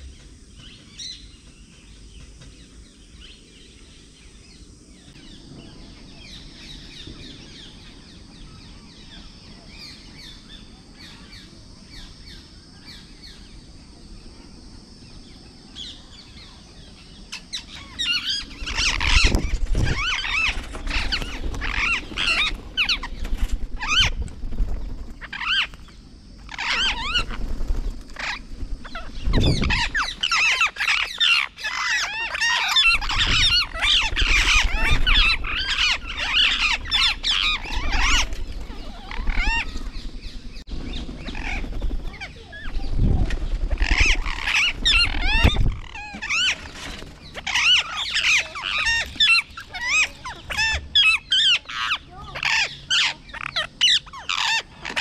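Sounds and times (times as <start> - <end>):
faint bird chirps: 0.0 - 55.0.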